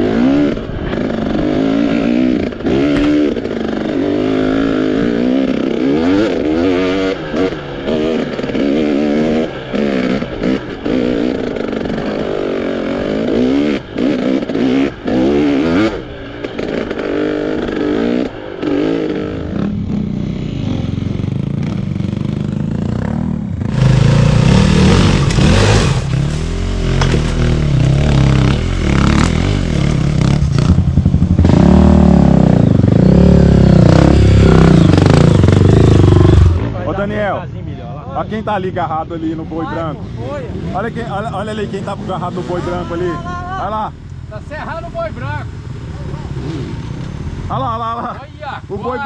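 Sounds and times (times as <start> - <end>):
motorcycle engine revving: 0.0 - 37.4, 39.2 - 49.0
clattering over rough ground: 24.7 - 29.4.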